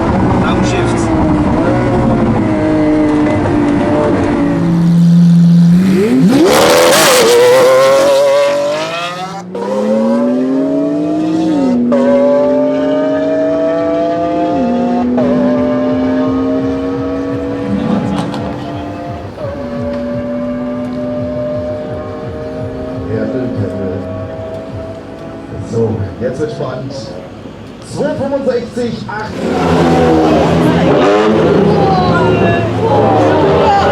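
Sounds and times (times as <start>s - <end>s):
car engine accelerating hard: 0.0s - 26.5s, 29.0s - 33.9s.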